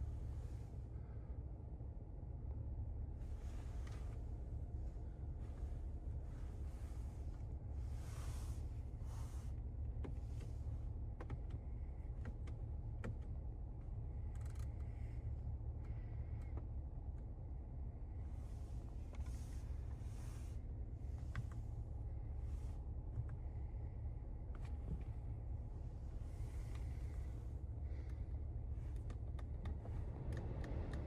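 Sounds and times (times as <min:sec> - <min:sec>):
car cabin road rumble: 0:02.1 - 0:31.0.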